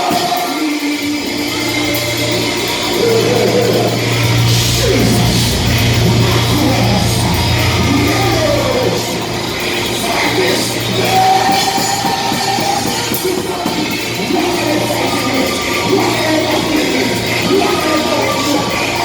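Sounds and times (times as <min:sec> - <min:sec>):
music with singing: 0:00.0 - 0:19.0
steady low hum: 0:01.8 - 0:10.8.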